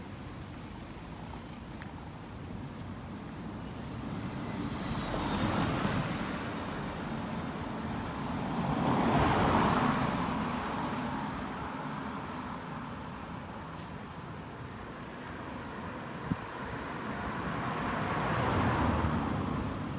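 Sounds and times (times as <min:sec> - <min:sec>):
vehicles passing by: 0:00.4 - 0:19.9.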